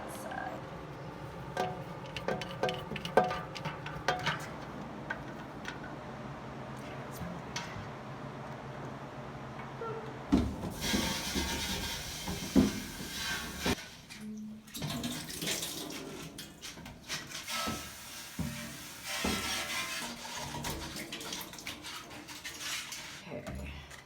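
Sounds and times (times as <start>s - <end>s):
water running from a tap: 10.7s - 13.8s, 14.8s - 23.2s.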